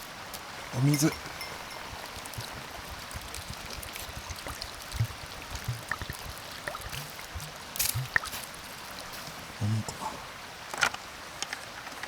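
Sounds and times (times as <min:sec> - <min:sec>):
water pouring into pot: 0:00.0 - 0:09.6
dull knocks of pot handling: 0:04.4 - 0:08.7.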